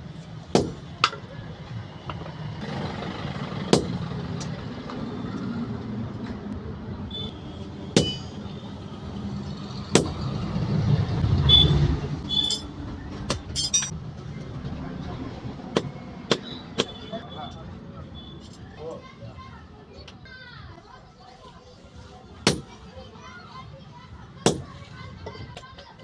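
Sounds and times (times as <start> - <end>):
sharp metallic knock: 8.0 - 8.3, 9.9 - 10.2.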